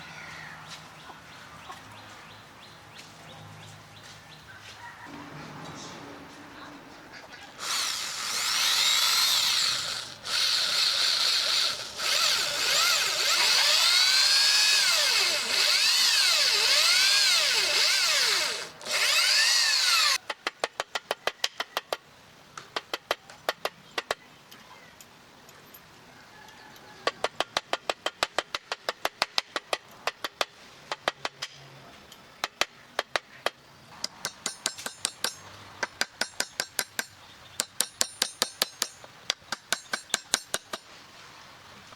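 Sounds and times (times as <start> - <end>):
power drill running: 7.6 - 20.2.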